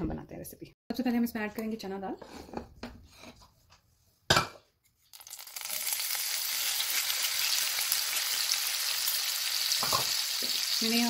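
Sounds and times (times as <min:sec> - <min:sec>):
hot oil sizzling: 0:05.1 - 0:11.0.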